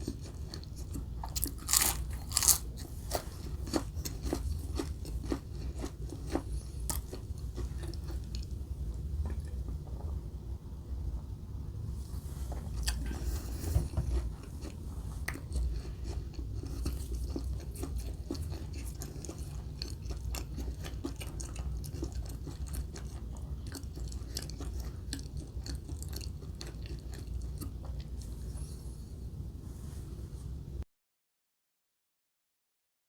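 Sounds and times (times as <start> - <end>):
chewing and crunching food: 0.0 - 9.9, 12.3 - 28.8
steady low rumble: 0.3 - 25.2.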